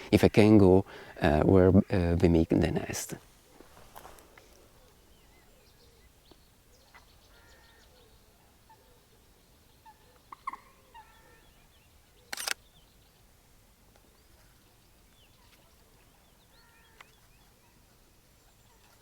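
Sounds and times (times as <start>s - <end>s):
bird chirps: 4.7s - 13.3s.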